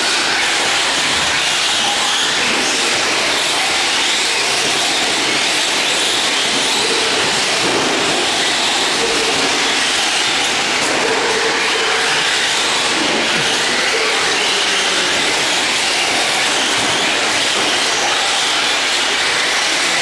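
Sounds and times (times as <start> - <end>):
radio-controlled trucks racing: 0.0 - 20.0.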